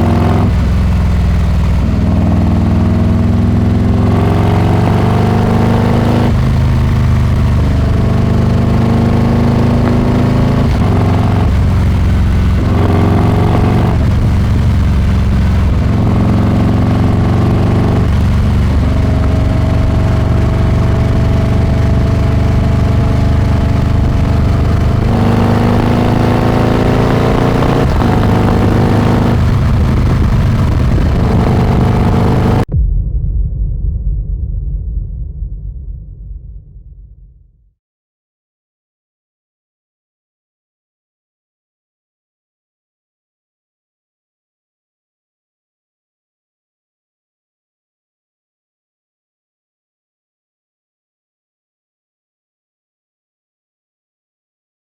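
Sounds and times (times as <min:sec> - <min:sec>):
motorcycle accelerating through gears: 0:00.0 - 0:32.7.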